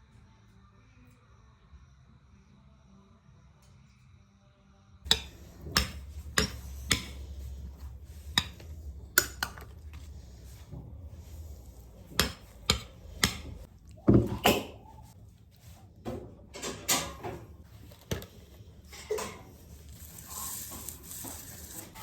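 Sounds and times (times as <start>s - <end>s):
hard objects knocking and clattering: 5.1s - 15.2s.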